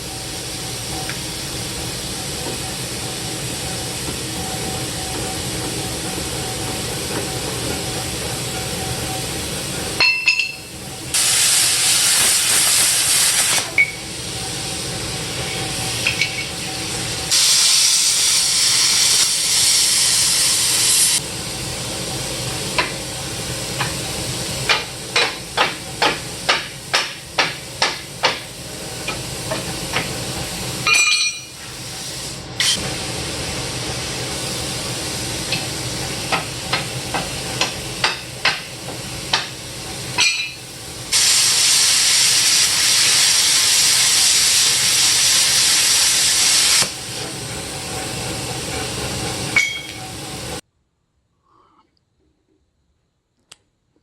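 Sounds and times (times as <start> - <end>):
loud steady hiss: 11.1 - 21.8, 31.6 - 47.4.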